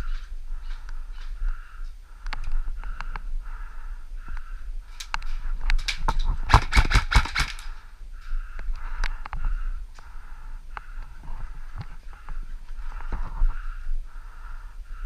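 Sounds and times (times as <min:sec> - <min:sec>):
airsoft guns firing: 0:06.4 - 0:07.8.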